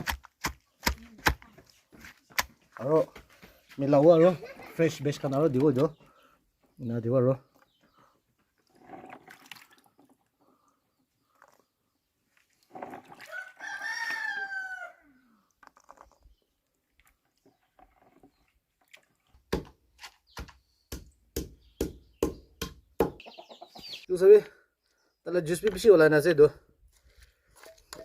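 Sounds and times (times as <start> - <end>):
rooster crowing: 13.3 - 15.2.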